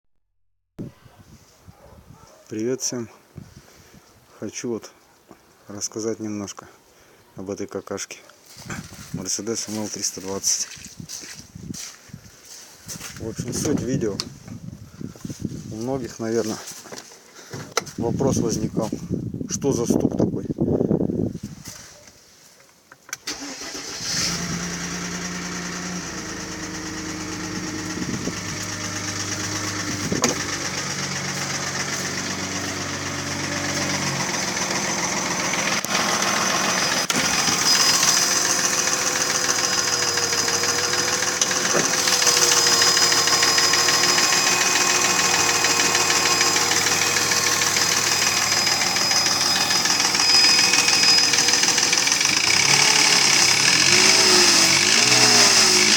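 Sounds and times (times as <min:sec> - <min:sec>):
car engine starting and idling: 0:23.1 - 0:55.9
engine knocking: 0:26.2 - 0:55.9.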